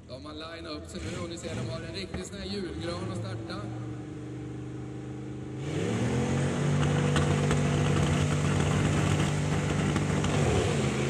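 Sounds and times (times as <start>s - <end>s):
tractor engines revving: 0.0s - 11.0s.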